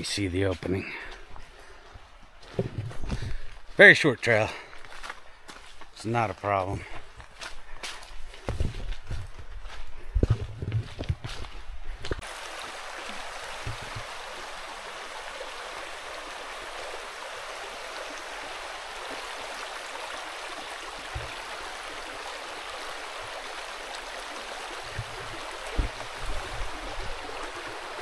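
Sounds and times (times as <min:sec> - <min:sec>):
soft low thumps: 0:08.4 - 0:12.2
flowing water rushing: 0:12.2 - 0:28.0.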